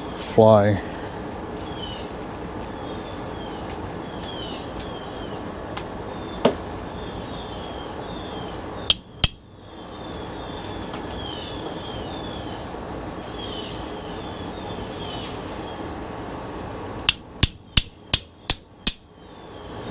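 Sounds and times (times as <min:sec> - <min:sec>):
hammer blows on metal part: 0:08.9 - 0:09.4, 0:17.1 - 0:19.1.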